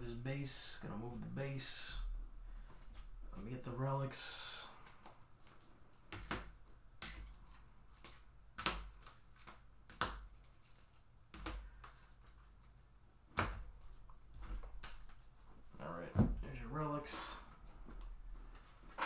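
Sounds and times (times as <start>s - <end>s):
cards tapping and clicking: 4.8s - 15.2s.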